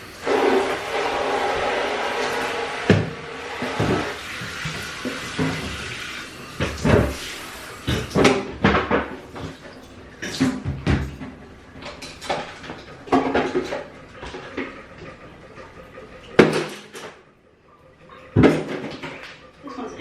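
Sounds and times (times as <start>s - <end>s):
objects knocking and clattering: 2.3s - 6.0s, 7.9s - 17.2s, 18.4s - 19.5s.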